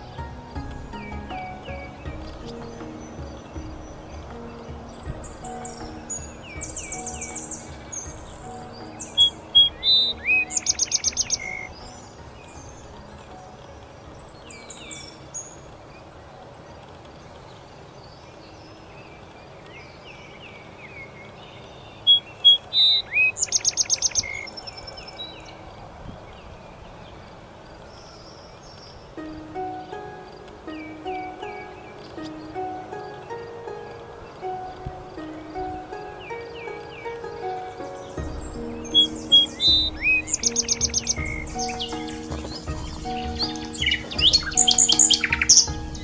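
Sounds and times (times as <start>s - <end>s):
songbird singing trill: 0.0s - 16.1s, 17.5s - 46.0s
steady outdoor hiss: 0.0s - 46.0s.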